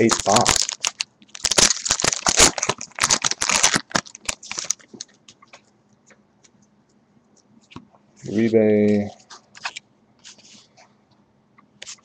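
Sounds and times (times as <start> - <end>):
wrapper crinkling: 0.0 - 5.2.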